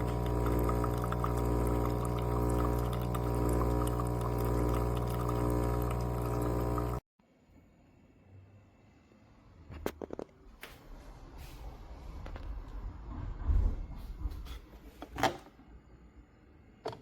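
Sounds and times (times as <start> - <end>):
espresso machine pump humming: 0.0 - 7.0
water pouring: 0.0 - 7.0.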